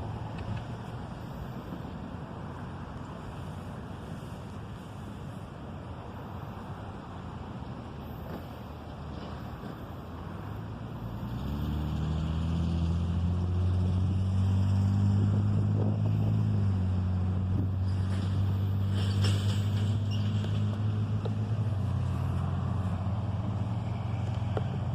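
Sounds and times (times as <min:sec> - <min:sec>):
diesel locomotive engine drone: 0:00.0 - 0:24.9
rolling noise: 0:15.5 - 0:24.9.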